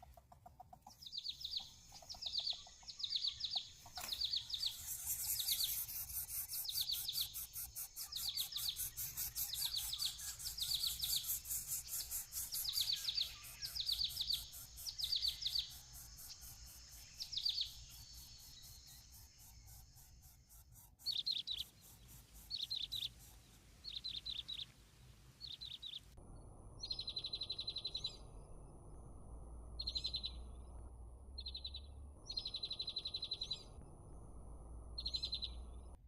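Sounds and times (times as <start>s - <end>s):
fast-pulsing insect drone: 4.5s - 23.4s.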